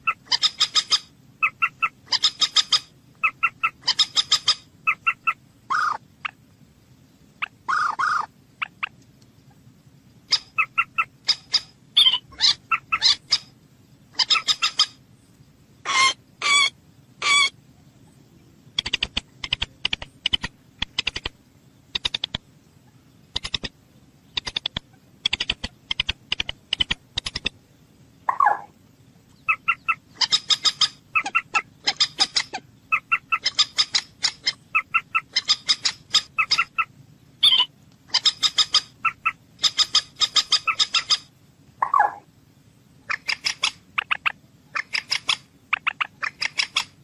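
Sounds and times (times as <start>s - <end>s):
moorhen calling: 0.0s - 6.4s, 7.4s - 13.5s, 14.1s - 15.0s, 15.8s - 17.6s, 28.2s - 28.7s, 29.3s - 42.3s, 43.0s - 47.0s.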